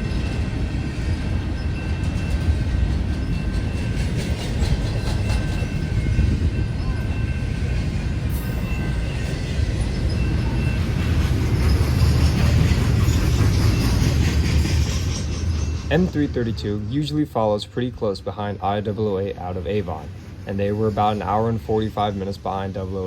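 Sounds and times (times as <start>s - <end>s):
freight train rumbling: 0.0s - 23.0s
faint high wheel squeal: 5.1s - 16.5s
wheels clicking over rail joints: 8.6s - 16.9s.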